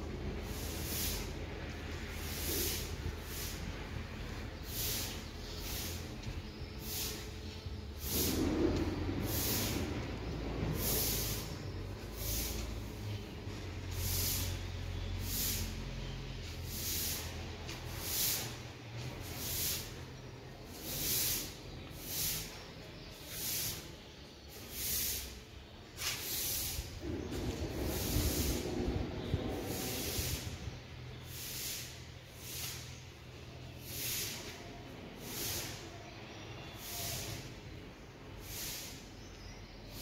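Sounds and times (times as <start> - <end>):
freight train rumble: 0.0 - 20.1, 26.2 - 32.8
close hissy breaths: 0.2 - 40.0.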